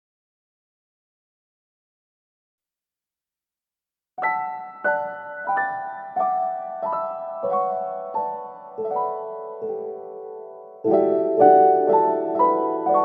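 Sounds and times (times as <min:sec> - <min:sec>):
slow piano music: 0:04.2 - 0:13.0.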